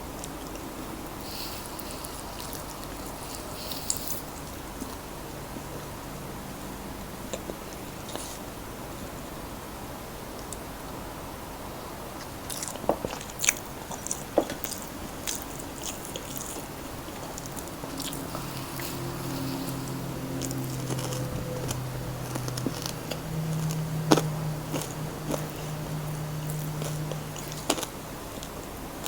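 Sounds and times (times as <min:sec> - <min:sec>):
steady low hum: 0:00.0 - 0:29.0
chewing: 0:00.2 - 0:05.0, 0:12.2 - 0:28.6.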